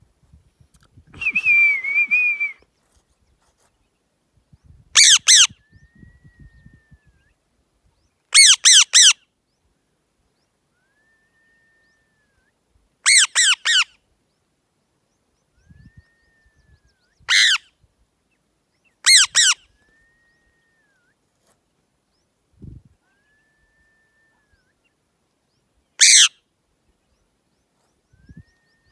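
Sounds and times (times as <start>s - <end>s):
parrot squawking: 17.3s - 17.6s, 19.1s - 19.6s, 26.0s - 26.3s.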